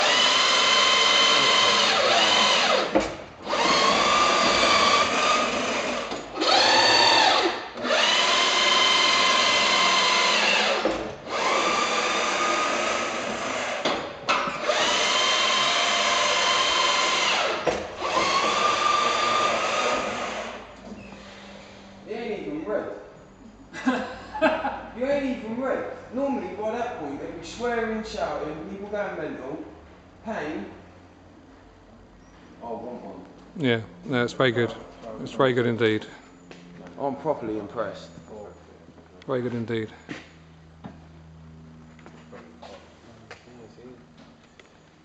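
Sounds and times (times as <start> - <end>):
electric motor whining: 0.0 - 21.9.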